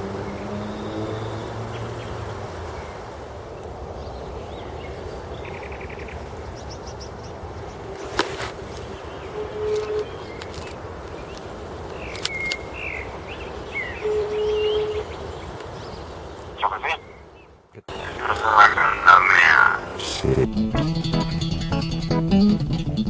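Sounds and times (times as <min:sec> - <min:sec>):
outdoor hiss: 0:00.0 - 0:17.2
bird chirps and trill: 0:08.8 - 0:18.2.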